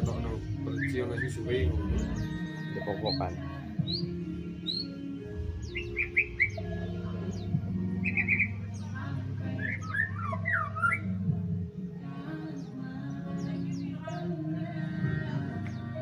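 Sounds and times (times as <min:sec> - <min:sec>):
bird singing whistled phrases: 0:00.7 - 0:03.2, 0:05.7 - 0:06.7, 0:08.0 - 0:08.6, 0:09.6 - 0:11.1.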